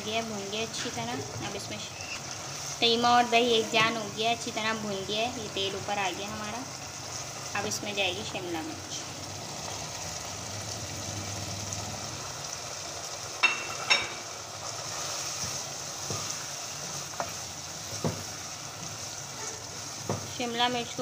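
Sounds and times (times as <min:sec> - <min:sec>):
meat sizzling in hot oil: 0:00.0 - 0:21.0
spatula striking a pan: 0:13.4 - 0:14.3, 0:17.1 - 0:18.3.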